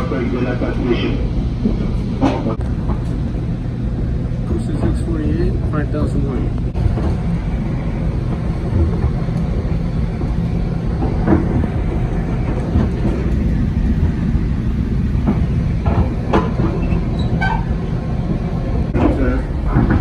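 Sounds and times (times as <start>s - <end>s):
train wheels rumbling on rail: 0.0s - 20.0s
track clicks: 10.8s - 14.9s.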